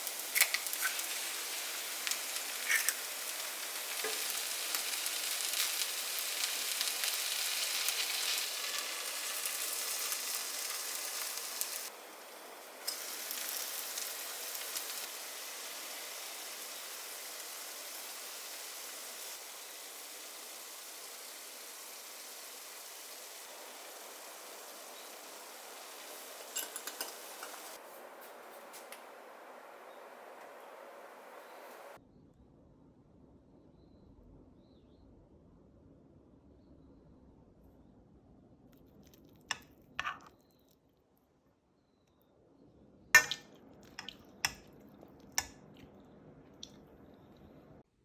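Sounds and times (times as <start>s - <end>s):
food sizzling in a frying pan: 0.0s - 32.0s, 39.5s - 40.3s, 43.2s - 45.6s.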